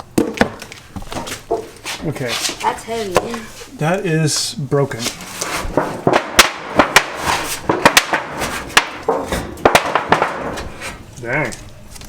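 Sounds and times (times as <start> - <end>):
hard objects knocking together: 5.1 - 11.7.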